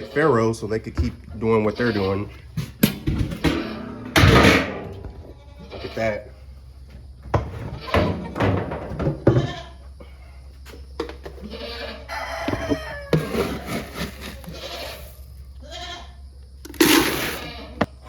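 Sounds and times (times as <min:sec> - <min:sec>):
goats bleating: 0:01.4 - 0:02.4, 0:05.1 - 0:06.3, 0:07.6 - 0:08.4, 0:09.3 - 0:09.8, 0:11.4 - 0:12.4, 0:14.4 - 0:16.2, 0:17.3 - 0:17.9.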